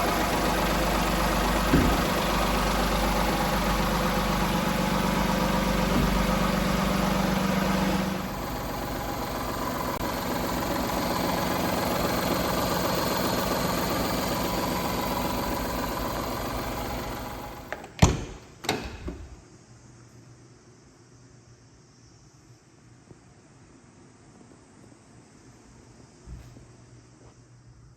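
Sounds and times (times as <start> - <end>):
truck engine idling: 0.0 - 17.7
sharp knocks: 1.6 - 2.4, 5.7 - 7.0.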